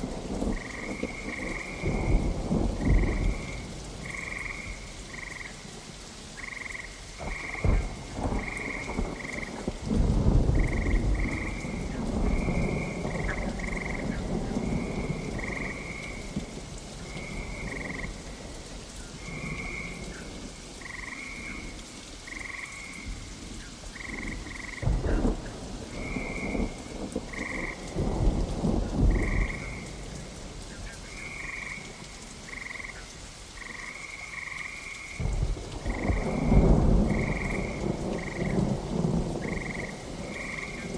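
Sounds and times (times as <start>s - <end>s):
thunder rumbling: 0.0s - 5.4s, 7.2s - 18.6s, 24.0s - 33.0s, 35.2s - 40.9s
steady rain: 0.0s - 40.9s
frogs calling: 0.2s - 5.7s, 6.4s - 9.8s, 10.6s - 16.3s, 17.1s - 18.2s, 19.2s - 23.1s, 23.9s - 28.0s, 28.6s - 30.0s, 30.8s - 40.9s.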